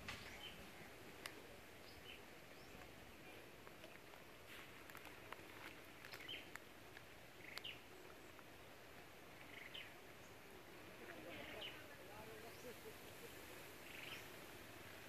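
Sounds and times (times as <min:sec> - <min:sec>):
low steady hiss: 0:00.0 - 0:15.0
bird chirps: 0:00.1 - 0:00.8, 0:06.0 - 0:06.5, 0:07.4 - 0:07.9, 0:09.4 - 0:10.4, 0:13.8 - 0:14.4.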